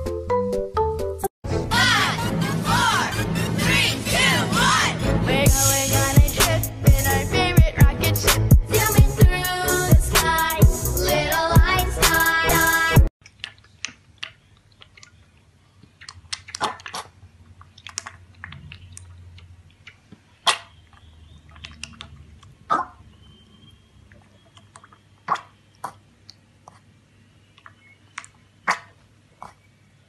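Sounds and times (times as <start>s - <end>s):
animal chewing crunchy food: 13.2s - 22.6s.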